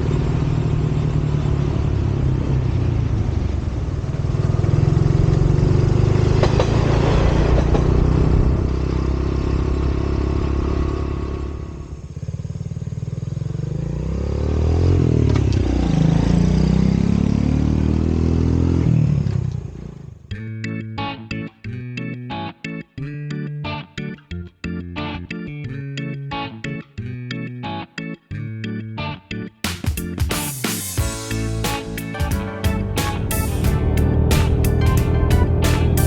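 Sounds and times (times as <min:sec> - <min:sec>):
vehicle engine revving: 0:00.0 - 0:20.2, 0:32.9 - 0:36.0.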